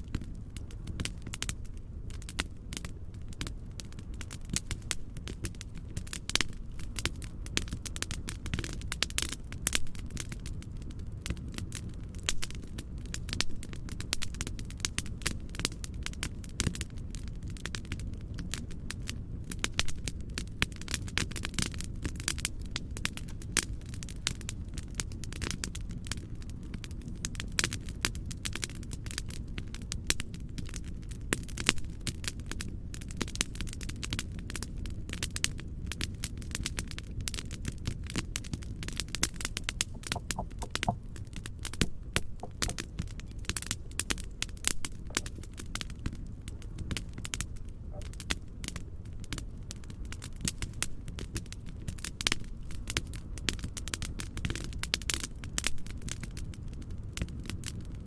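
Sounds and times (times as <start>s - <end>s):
fireplace fire crackling: 0.0s - 58.0s
low rumbling noise: 39.1s - 46.8s.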